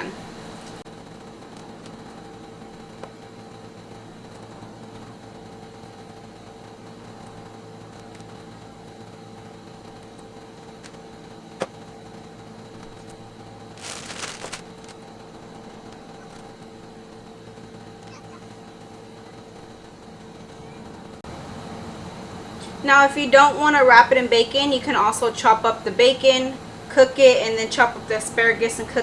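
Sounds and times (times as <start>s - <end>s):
appliance hum: 0.0s - 29.0s
short rustle: 13.8s - 15.0s.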